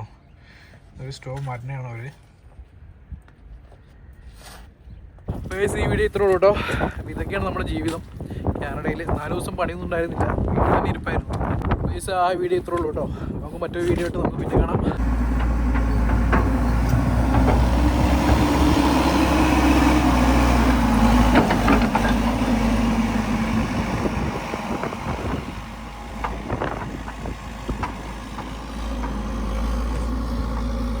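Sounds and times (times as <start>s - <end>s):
engine humming: 14.8s - 31.0s
knocks: 15.3s - 18.6s.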